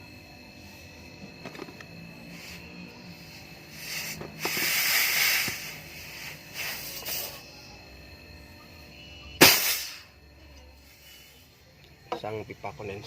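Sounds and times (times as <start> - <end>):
pressurised gas hissing: 2.3 - 7.4, 9.4 - 10.1
sharp blast of gas: 3.8 - 7.2, 9.4 - 10.1.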